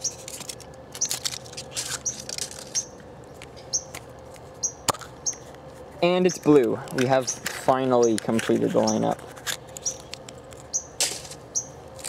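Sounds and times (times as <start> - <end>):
hands handling plastic capsule: 0.0 - 5.6
songbird chirping: 7.0 - 9.2.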